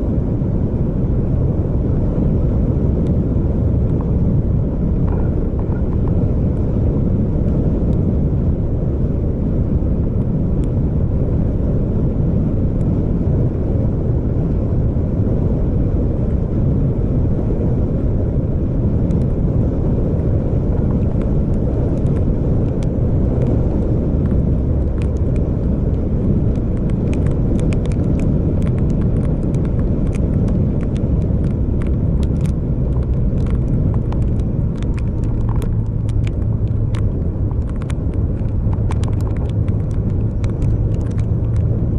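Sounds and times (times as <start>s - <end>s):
vehicle driving along a road: 0.0s - 41.9s
light ticks and clicks: 20.8s - 41.8s.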